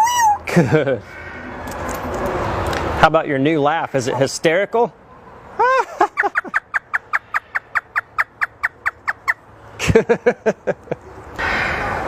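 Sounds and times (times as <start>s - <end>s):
parrot imitating laughter: 5.6s - 9.4s.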